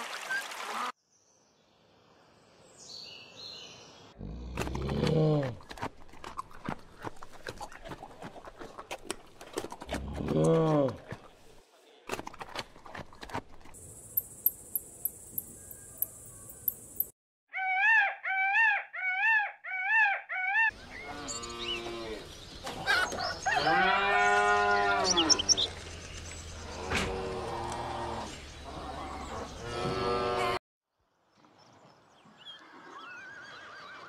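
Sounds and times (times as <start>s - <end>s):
peacock calling: 14.2s - 21.9s.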